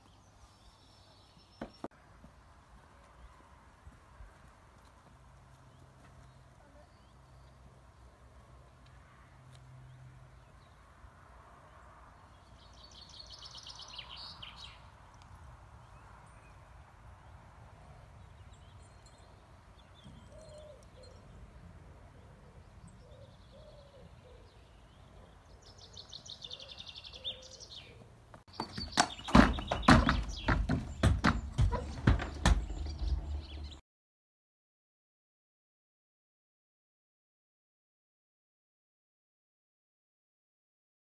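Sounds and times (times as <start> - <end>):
songbirds trilling: 18.2 - 33.8
low outdoor rumble: 29.8 - 33.8.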